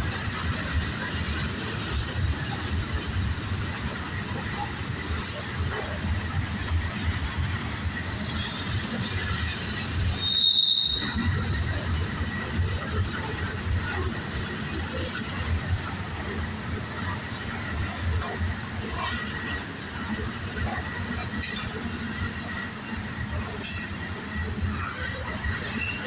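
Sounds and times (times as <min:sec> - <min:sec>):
train wheels rumbling on rail: 0:00.0 - 0:26.0
high wheel squeal: 0:10.1 - 0:11.5.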